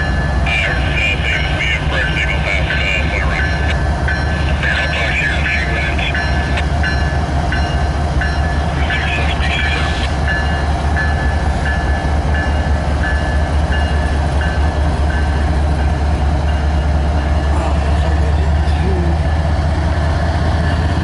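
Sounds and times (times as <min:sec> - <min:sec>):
freight train rumbling: 0:00.0 - 0:21.0.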